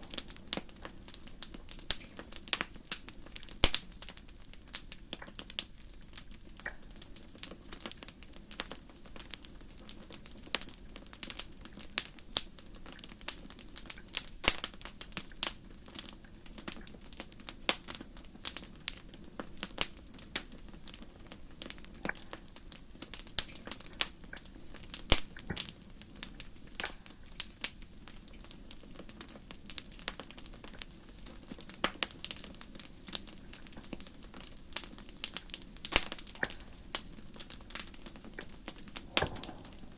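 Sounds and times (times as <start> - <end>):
fire crackling and popping: 0.0 - 39.9
hiss of flames: 34.7 - 39.9.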